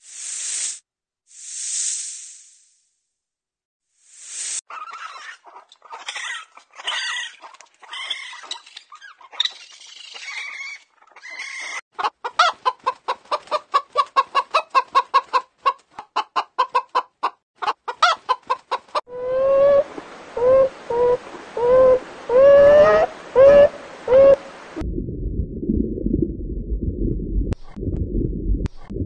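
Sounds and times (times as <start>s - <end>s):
chickens clucking and squawking: 4.7s - 24.4s.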